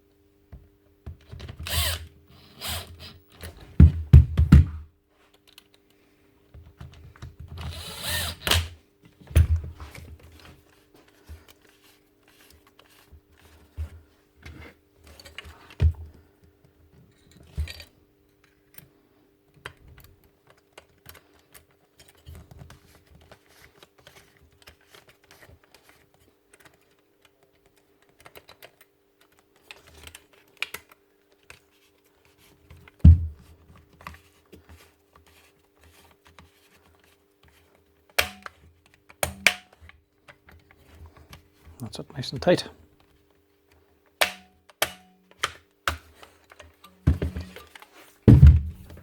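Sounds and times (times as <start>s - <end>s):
heavy knock: 48.3s - 49.0s.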